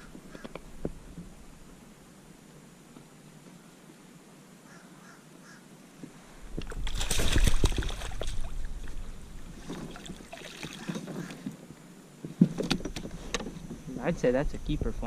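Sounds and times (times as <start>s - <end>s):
water splashing: 6.4s - 11.5s.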